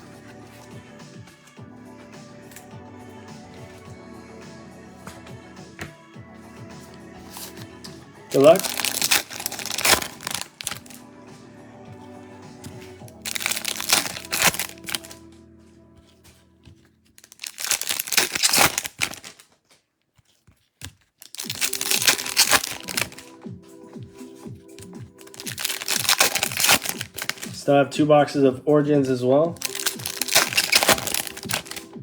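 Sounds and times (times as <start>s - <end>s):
background music: 0.0s - 19.4s, 21.3s - 32.0s
card packaging crinkling and tearing: 7.3s - 7.7s, 8.3s - 11.0s, 12.6s - 15.2s, 16.0s - 23.4s, 24.0s - 27.7s, 29.6s - 32.0s.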